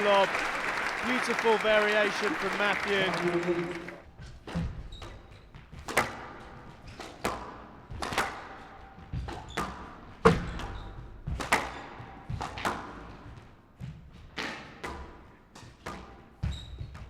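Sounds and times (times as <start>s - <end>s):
squash ball striking rackets and walls: 4.4s - 17.0s.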